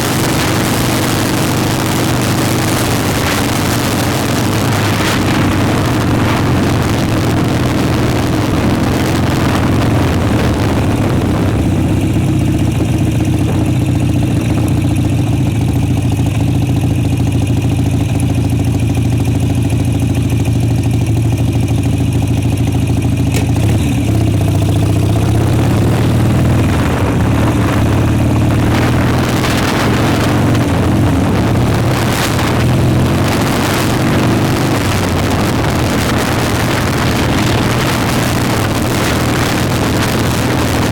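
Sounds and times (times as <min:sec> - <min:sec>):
motorcycle engine running: 0:00.0 - 0:40.9
wind buffeting microphone: 0:02.6 - 0:15.6, 0:23.6 - 0:40.9.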